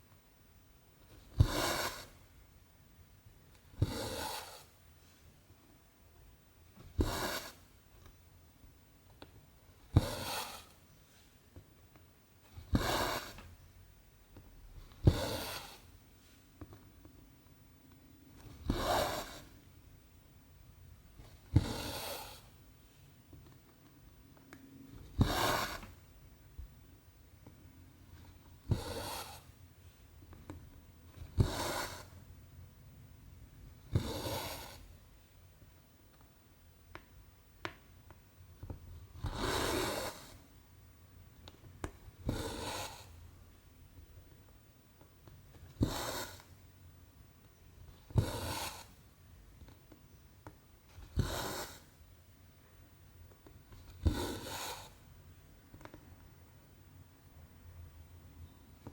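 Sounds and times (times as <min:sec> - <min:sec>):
thread rasping through canvas: 0:09.7 - 0:10.8, 0:12.5 - 0:13.6, 0:21.2 - 0:22.6, 0:25.0 - 0:26.0, 0:28.2 - 0:29.6, 0:47.8 - 0:49.7, 0:50.8 - 0:52.0, 0:53.4 - 0:55.0.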